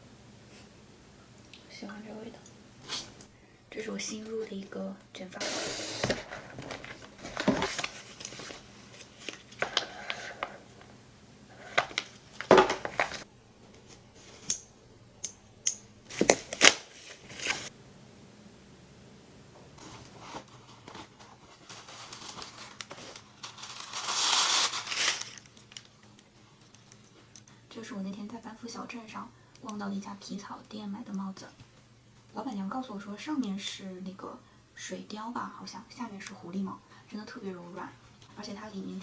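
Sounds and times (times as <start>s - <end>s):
paper and plastic rustling: 5.4s - 14.5s, 16.1s - 17.7s, 19.8s - 27.3s.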